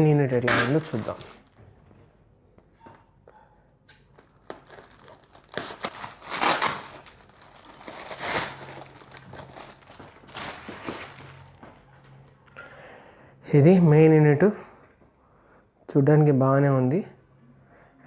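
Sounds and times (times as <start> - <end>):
packaging rustling and tearing: 0.3 - 1.6, 4.1 - 11.8.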